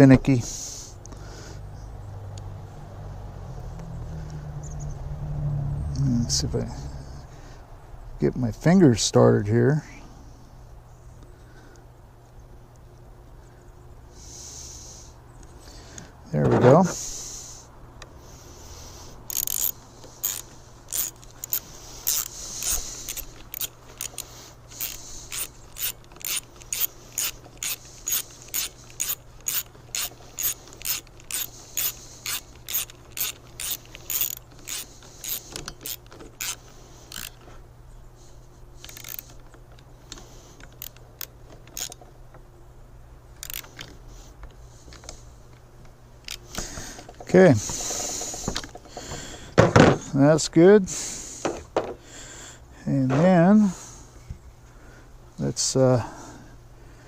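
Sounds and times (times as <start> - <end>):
ratchet wrench clicking: 19.2 - 37.4, 38.8 - 39.4, 40.6 - 42.0, 43.4 - 44.0, 46.2 - 46.7.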